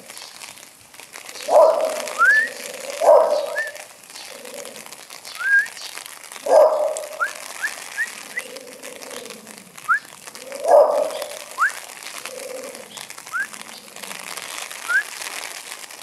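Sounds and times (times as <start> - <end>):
dog barking: 1.5 - 2.1, 3.0 - 3.6, 6.4 - 7.2, 10.6 - 11.3.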